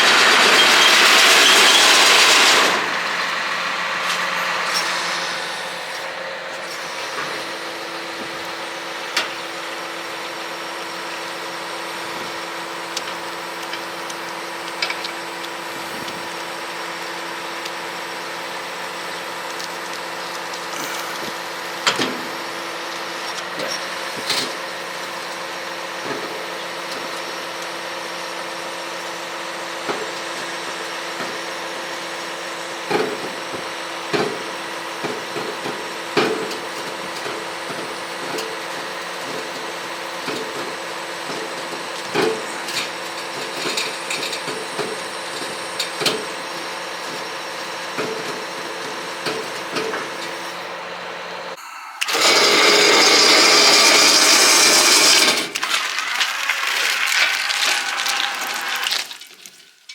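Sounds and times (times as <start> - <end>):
engine idling: 0.0 - 26.4.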